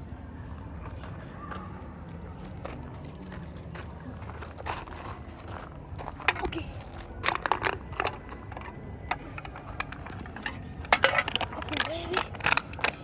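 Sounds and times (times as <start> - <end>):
bottle crackling and crunching: 4.2 - 13.0.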